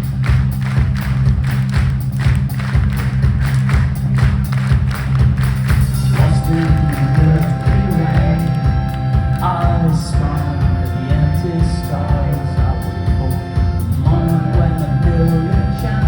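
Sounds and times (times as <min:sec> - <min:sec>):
heavy bass: 0:00.0 - 0:16.0
live pop-rock band playing: 0:02.5 - 0:16.0
sustained chords ringing: 0:06.0 - 0:16.0
person singing: 0:06.1 - 0:16.0.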